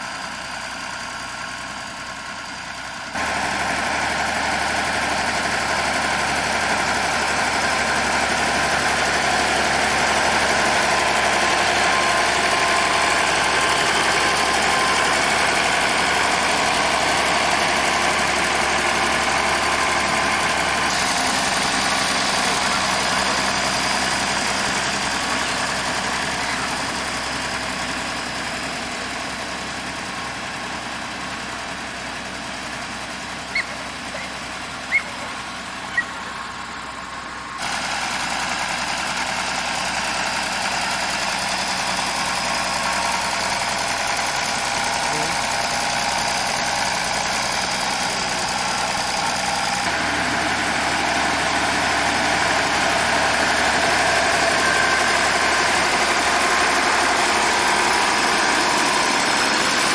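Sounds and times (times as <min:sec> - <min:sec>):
engine running: 0:00.0 - 0:59.9
high chirps: 0:33.5 - 0:36.3.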